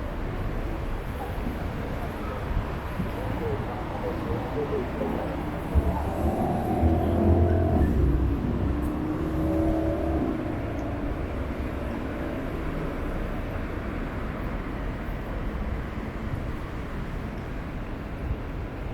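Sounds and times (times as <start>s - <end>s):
street traffic noise: 0.0s - 18.9s
vehicle engine rumbling past: 5.2s - 12.6s.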